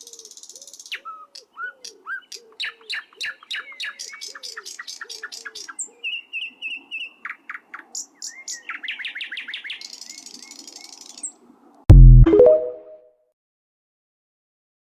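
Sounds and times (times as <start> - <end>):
loud low boom: 11.9 - 12.4.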